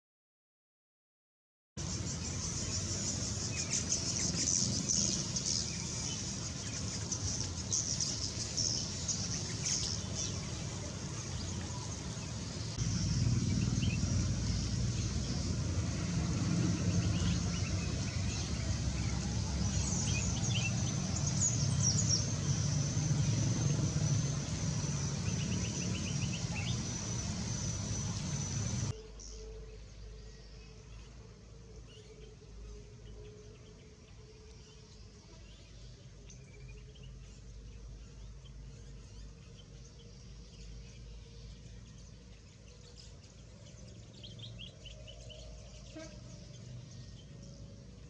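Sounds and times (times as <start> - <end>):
small birds chirping: 1.8 - 31.1, 31.8 - 48.0
steady low rumble: 1.9 - 29.0.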